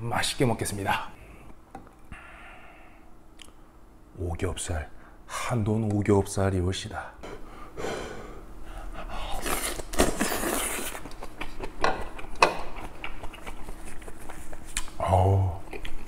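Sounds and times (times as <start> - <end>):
wet chewing: 9.3 - 15.0, 15.6 - 16.0.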